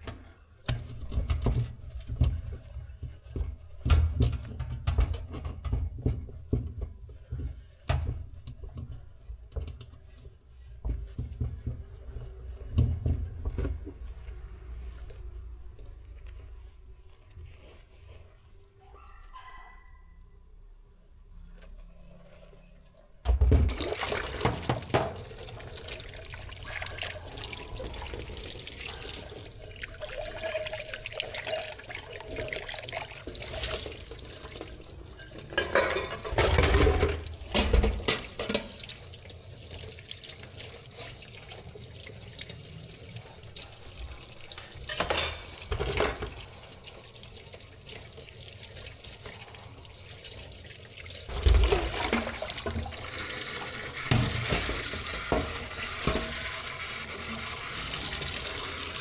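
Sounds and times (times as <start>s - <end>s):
tap water running into sink: 23.3s - 59.0s
water splashing: 23.7s - 59.0s.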